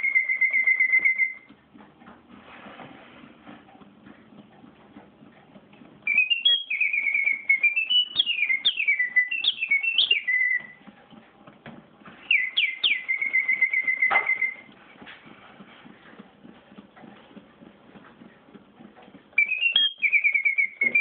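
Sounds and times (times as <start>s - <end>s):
mechanical bird whistling: 0.0s - 1.5s, 6.0s - 10.8s, 12.2s - 14.7s, 19.4s - 21.0s.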